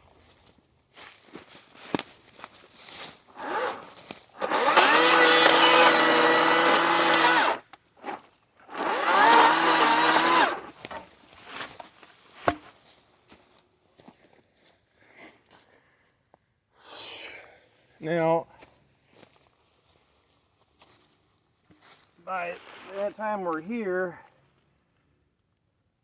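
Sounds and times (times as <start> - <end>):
electric chainsaw motor whine: 3.3 - 11.0.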